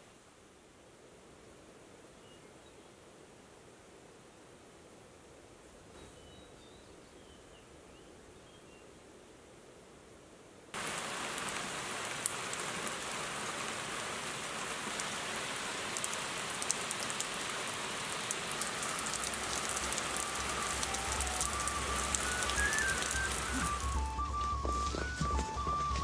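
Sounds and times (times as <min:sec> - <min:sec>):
heavy rain on water: 0:10.8 - 0:24.2
soft music: 0:18.8 - 0:26.0.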